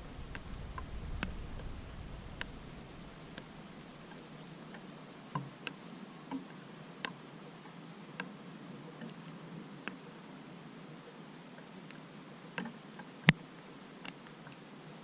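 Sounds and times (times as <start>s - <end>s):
raindrops ticking: 0.0s - 8.3s
faint rain hiss: 0.0s - 15.0s.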